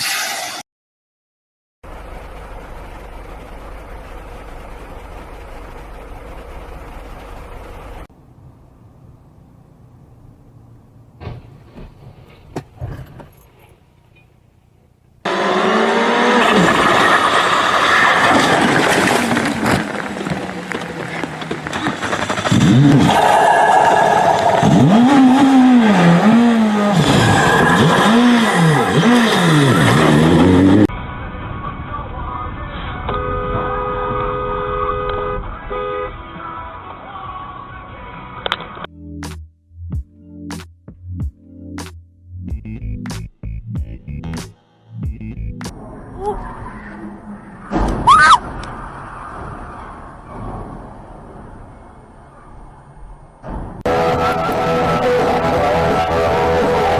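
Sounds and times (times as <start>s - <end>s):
vehicle engine and road rumble: 1.8s - 56.9s
car engine revving: 15.2s - 18.7s, 19.6s - 30.9s, 53.9s - 56.9s.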